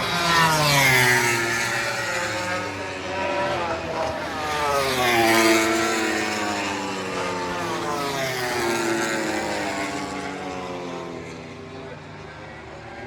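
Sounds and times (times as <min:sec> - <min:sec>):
motorcycle passing at speed: 0:00.0 - 0:13.0.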